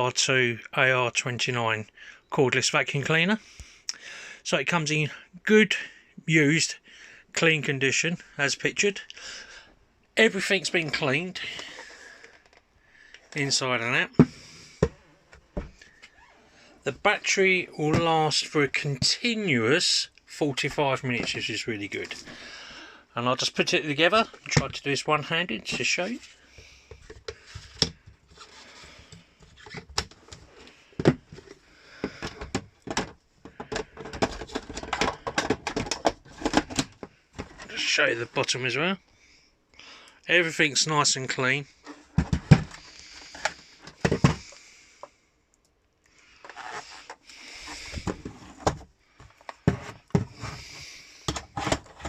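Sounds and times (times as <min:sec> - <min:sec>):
plastic parts clicking and knocking: 0:10.7 - 0:13.4, 0:26.6 - 0:28.4, 0:29.1 - 0:37.7, 0:42.0 - 0:45.1, 0:46.4 - 0:52.0
plastic rustling and scraping: 0:27.0 - 0:38.0, 0:41.8 - 0:44.6, 0:46.3 - 0:52.0.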